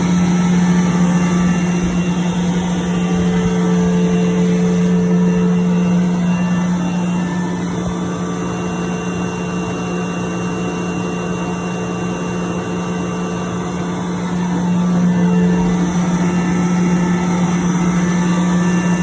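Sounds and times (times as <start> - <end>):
air compressor humming: 0.0 - 19.0.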